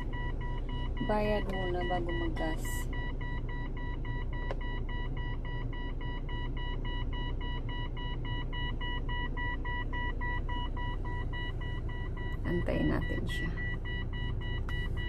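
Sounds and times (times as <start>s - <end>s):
car warning chime beeping: 0.0s - 15.0s
low steady rumble: 0.0s - 15.0s.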